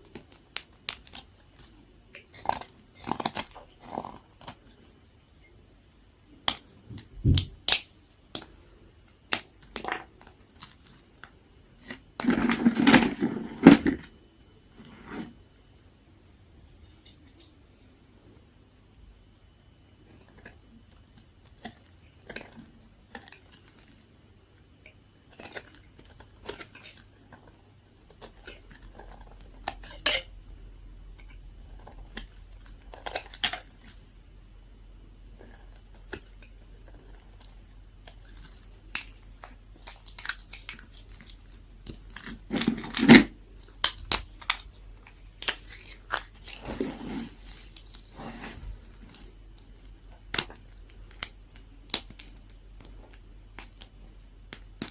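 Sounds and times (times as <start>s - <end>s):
soap being cut with crunches: 0.0s - 4.6s.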